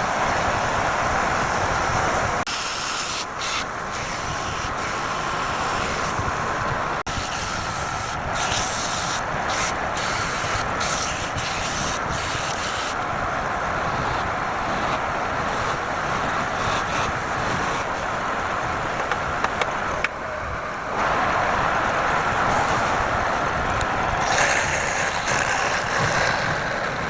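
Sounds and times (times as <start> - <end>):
sandpaper rubbing spinning wood: 7.1 - 13.0, 24.2 - 27.0
wood lathe running: 22.3 - 27.0.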